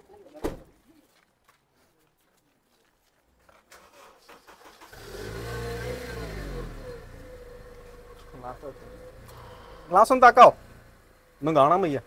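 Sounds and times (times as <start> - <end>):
car engine starting and idling: 3.8 - 12.0.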